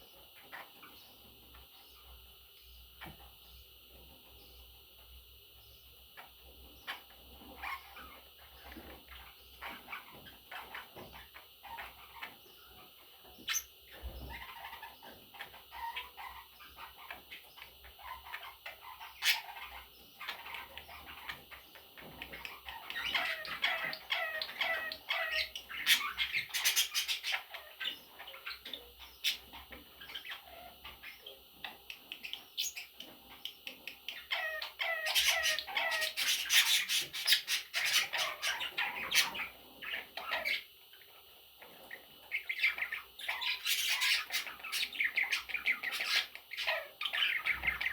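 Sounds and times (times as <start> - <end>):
budgerigars chirping and squawking: 0.0 - 2.2, 2.8 - 47.9.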